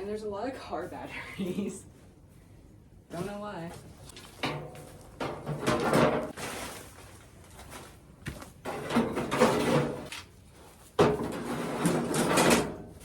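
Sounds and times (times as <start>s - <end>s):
objects scraping and clattering: 4.1s - 13.0s.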